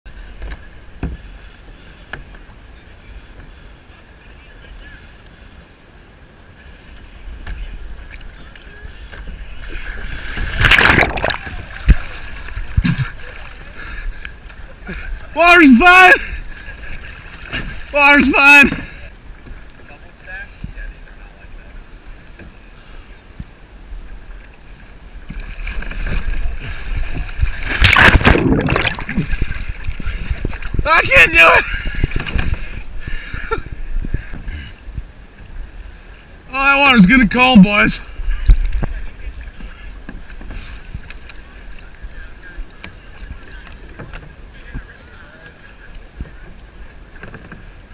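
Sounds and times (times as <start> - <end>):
water sloshing around a kayak: 0.1 - 47.9
person splashing into water: 10.3 - 13.3, 27.5 - 29.6.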